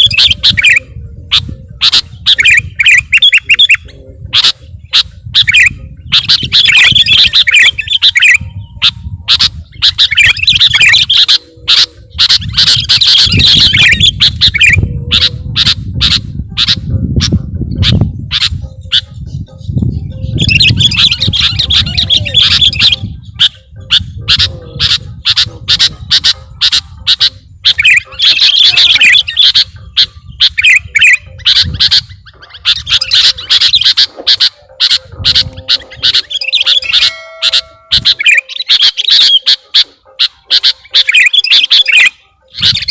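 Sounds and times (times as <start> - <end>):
bird chattering song: 0.0 - 42.9.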